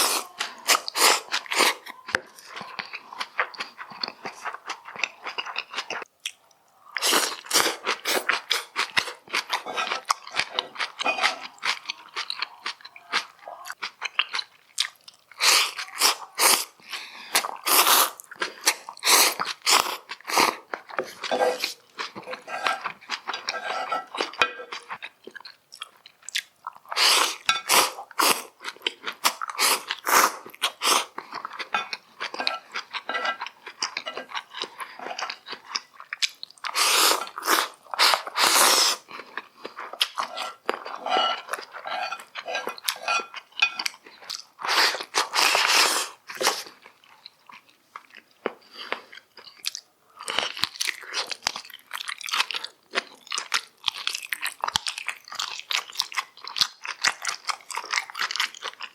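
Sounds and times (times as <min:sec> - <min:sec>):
person chewing with wet crunching: 0:00.0 - 0:58.9.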